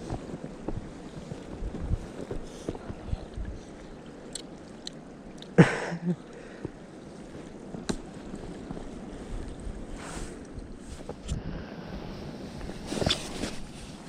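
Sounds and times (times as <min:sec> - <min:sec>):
wind rumbling on microphone: 0:00.0 - 0:05.4, 0:06.5 - 0:14.0
small clicks and rustles: 0:12.6 - 0:14.0.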